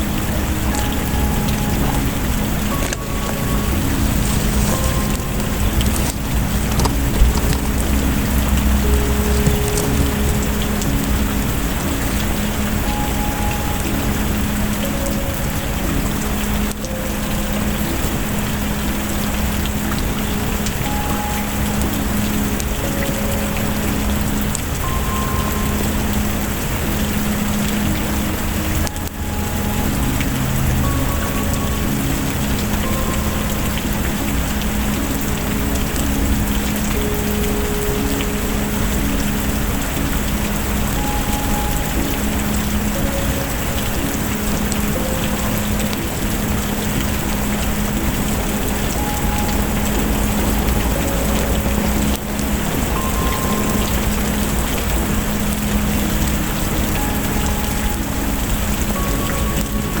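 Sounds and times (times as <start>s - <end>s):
heavy rain hissing: 0.0s - 60.0s
small clicks and crackles: 2.7s - 10.6s.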